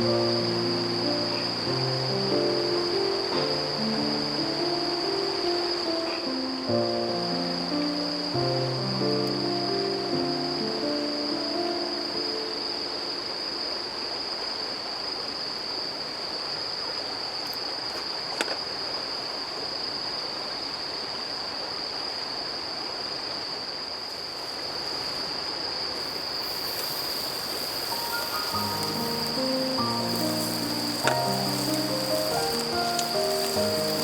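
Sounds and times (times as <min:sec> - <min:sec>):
crickets trilling: 0:00.0 - 0:34.0
running water: 0:24.5 - 0:34.0.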